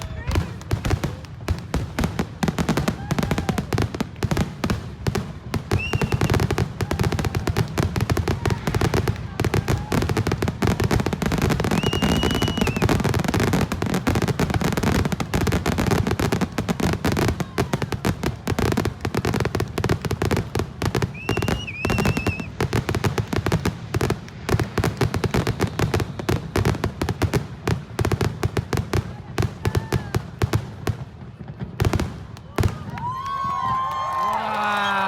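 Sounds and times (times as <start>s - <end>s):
high whistling firework: 0.0s - 4.3s, 5.4s - 17.9s, 20.1s - 28.1s
fireworks crackling pops: 0.0s - 35.0s.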